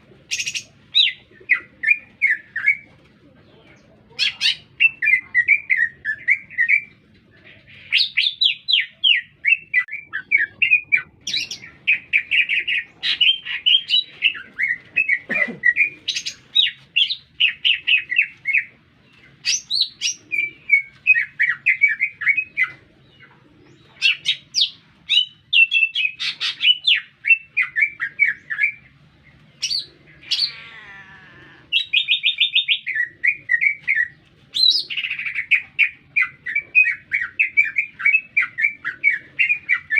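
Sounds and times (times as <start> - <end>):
bird singing and whistling: 19.4 - 22.8, 24.2 - 28.8, 31.7 - 39.9.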